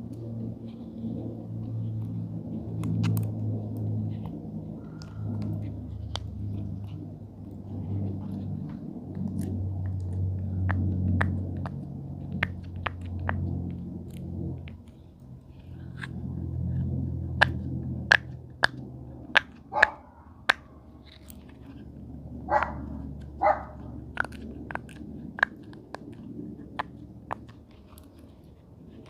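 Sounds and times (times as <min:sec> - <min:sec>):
low hum: 0:00.0 - 0:29.0
plastic clicks from fidget toys: 0:23.3 - 0:28.2.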